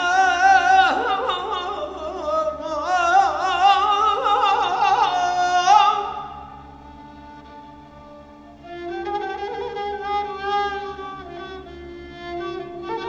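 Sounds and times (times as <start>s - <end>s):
man singing ornamented notes: 0.0s - 7.3s.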